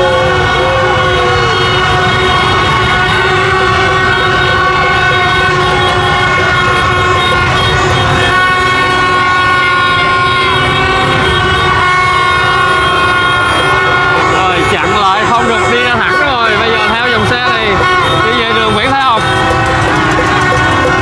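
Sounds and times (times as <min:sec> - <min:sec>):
many horns sounding: 0:00.0 - 0:21.0
motorbike engines rumbling: 0:00.0 - 0:21.0.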